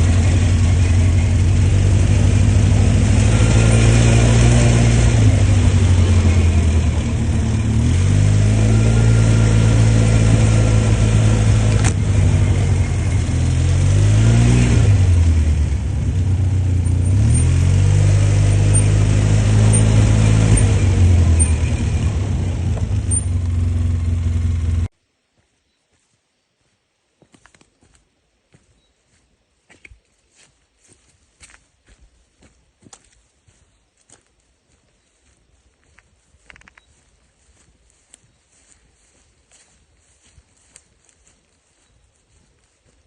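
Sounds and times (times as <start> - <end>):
atv engine revving: 0.0 - 24.9.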